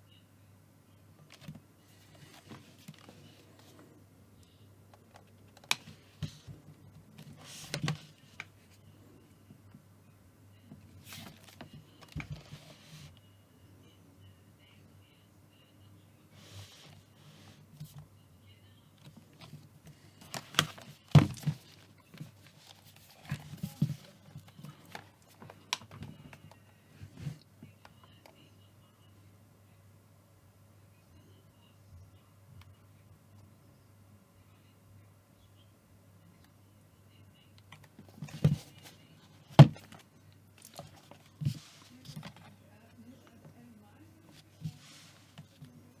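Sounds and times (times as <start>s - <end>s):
laptop set down with thuds: 20.3s - 21.7s, 39.5s - 40.0s.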